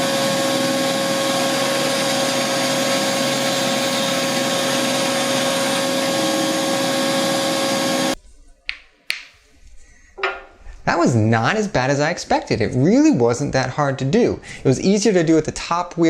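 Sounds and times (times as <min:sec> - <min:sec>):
band saw whining: 0:00.0 - 0:08.2.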